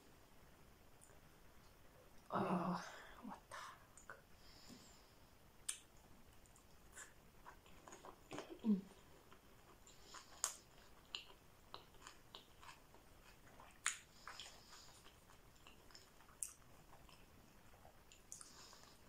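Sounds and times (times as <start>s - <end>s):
soft mouth clicks: 3.9s - 4.2s, 5.6s - 7.6s, 13.7s - 16.6s, 18.1s - 18.9s
chewing food: 5.6s - 19.0s.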